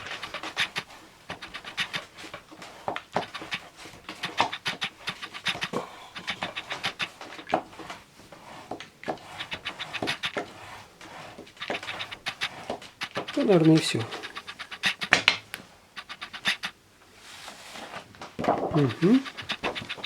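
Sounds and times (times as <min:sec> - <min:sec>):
scratching and rubbing strokes: 0:00.0 - 0:20.0.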